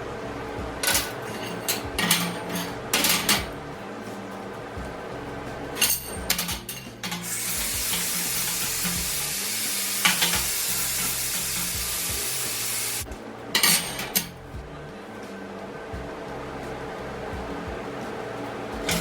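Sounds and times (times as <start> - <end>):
sharp metal clanks: 0.8 - 3.6, 5.8 - 9.4, 10.0 - 12.2, 13.6 - 14.4
welding arc crackling: 7.2 - 13.1.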